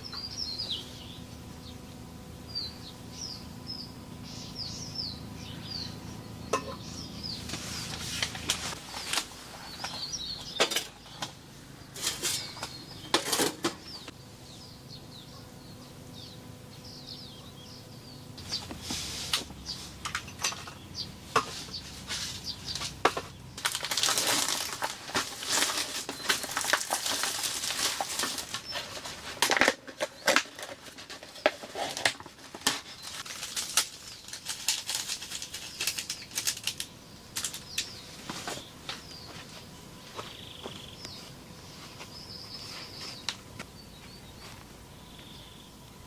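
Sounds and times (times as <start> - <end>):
rustling: 7.4 - 10.0, 21.4 - 36.8.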